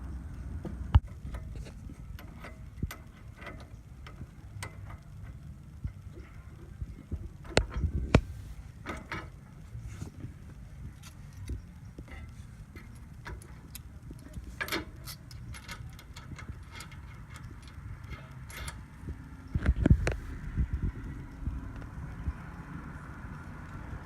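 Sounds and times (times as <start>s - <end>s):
small metal parts clinking: 10.9s - 20.2s.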